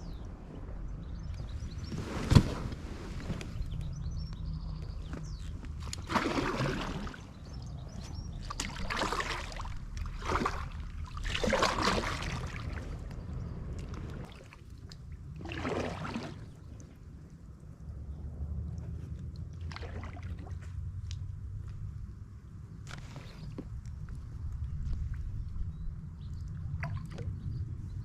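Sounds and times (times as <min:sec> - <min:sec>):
paddle splashing in water: 0:05.8 - 0:07.4, 0:08.4 - 0:13.0, 0:15.4 - 0:16.6
steady low rumble: 0:07.0 - 0:28.0.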